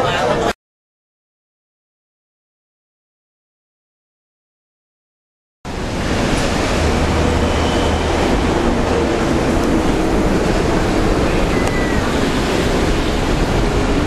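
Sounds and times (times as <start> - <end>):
train wheels rolling on rail: 5.7 - 14.0
high wheel squeal: 7.2 - 9.2, 11.0 - 13.4.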